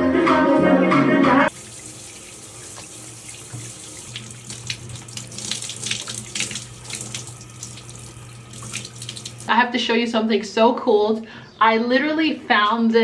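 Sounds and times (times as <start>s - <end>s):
tap running water into sink: 1.5s - 9.5s
water splashing: 1.5s - 9.5s.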